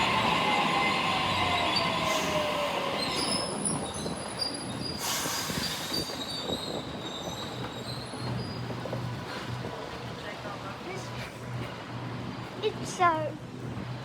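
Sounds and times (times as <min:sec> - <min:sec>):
electric train motor whine: 0:00.0 - 0:03.3
wheel and brake squeal: 0:01.6 - 0:08.8.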